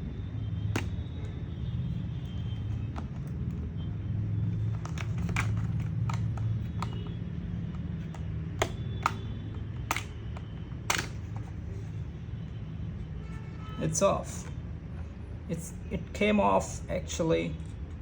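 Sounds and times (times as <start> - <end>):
plastic clips clicking and snapping: 0.8 - 1.4, 4.6 - 11.5.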